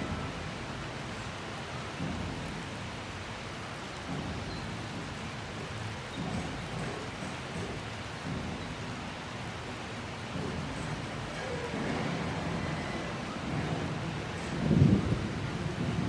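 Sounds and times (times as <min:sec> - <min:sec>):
steady rain: 0:00.0 - 0:16.0
thunder rumbling: 0:10.4 - 0:16.0.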